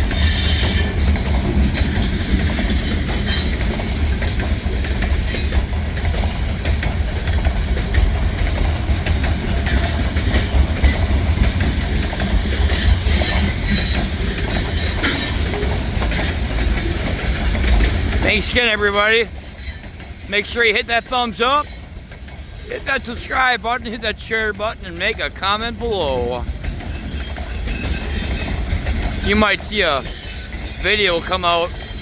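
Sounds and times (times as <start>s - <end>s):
freight train rumble: 0.0s - 32.0s
train wheel clatter: 0.0s - 32.0s
high wheel squeals: 9.6s - 21.8s, 26.9s - 29.2s.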